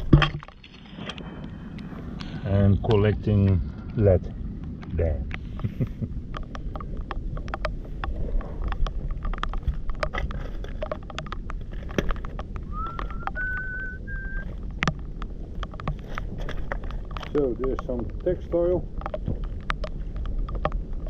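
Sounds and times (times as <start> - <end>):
wind rumble on microphone: 0.0 - 21.0
high whistled note: 12.7 - 14.5.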